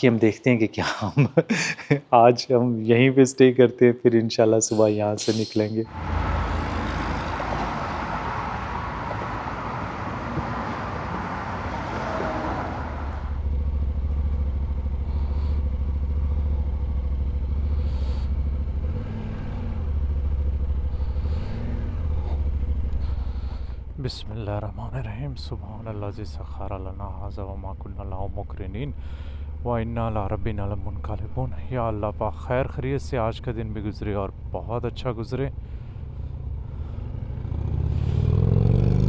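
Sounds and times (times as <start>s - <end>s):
motorcycle engine idling: 12.9s - 38.2s.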